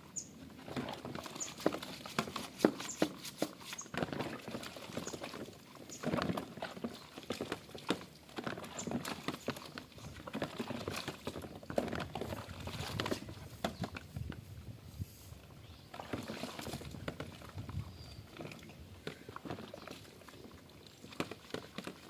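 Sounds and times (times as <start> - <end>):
water sounds: 0.0 - 14.5, 15.4 - 22.0
scratchy rubbing with sacking: 1.4 - 3.9.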